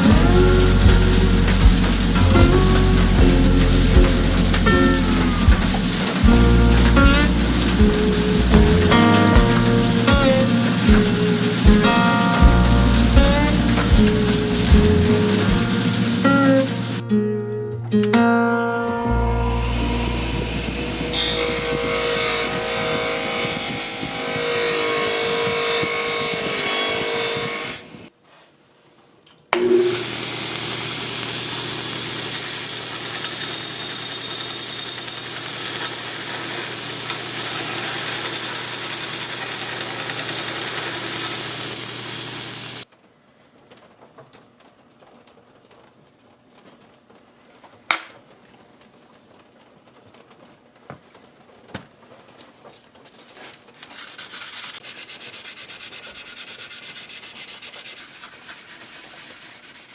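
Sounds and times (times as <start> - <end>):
power sander hiss and motor hum: 0.0 - 17.0, 19.3 - 28.1, 29.6 - 42.8
held tones: 0.0 - 17.1.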